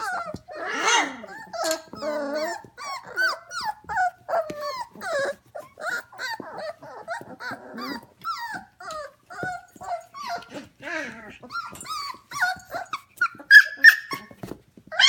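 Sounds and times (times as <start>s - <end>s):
puppies whining and yipping: 0.0s - 15.0s.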